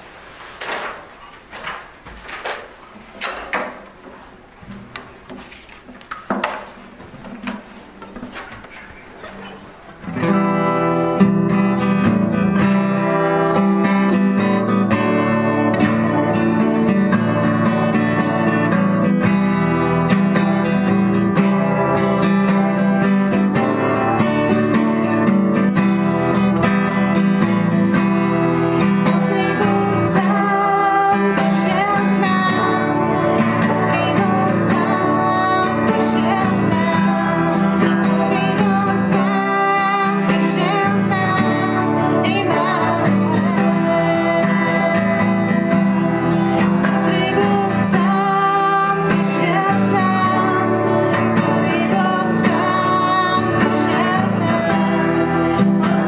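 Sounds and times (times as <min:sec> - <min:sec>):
acoustic guitar: 0:00.0 - 0:56.0
people singing worship song: 0:29.1 - 0:55.1.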